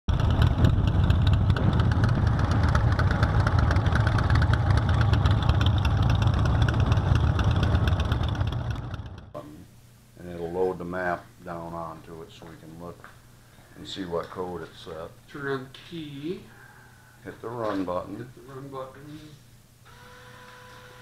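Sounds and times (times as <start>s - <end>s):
motorcycle engine running: 0.1s - 9.4s.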